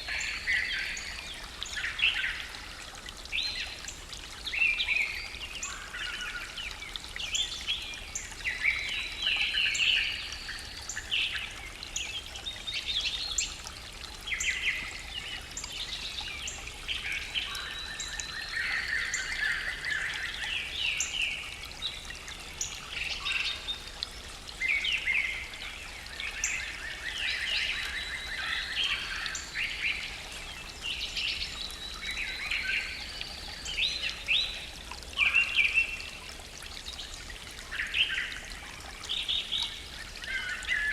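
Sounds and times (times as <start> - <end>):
bird chorus: 14.3 - 24.0, 24.6 - 36.3.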